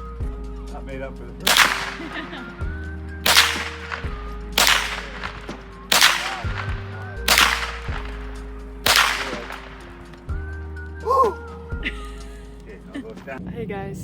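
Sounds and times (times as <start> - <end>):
background music with bass: 0.0 - 14.0
sharp clap-like snap: 1.5 - 2.5, 3.3 - 8.3, 8.9 - 10.2.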